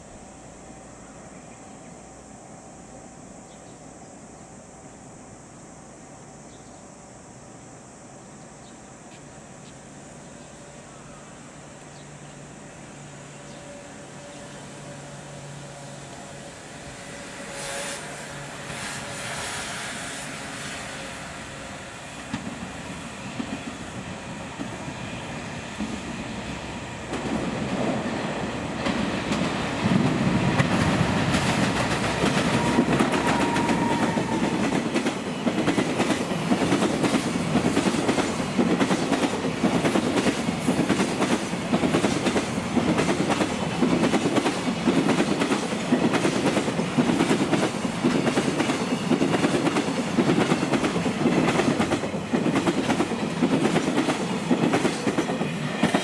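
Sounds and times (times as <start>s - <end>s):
freight train approaching: 0.0s - 56.0s.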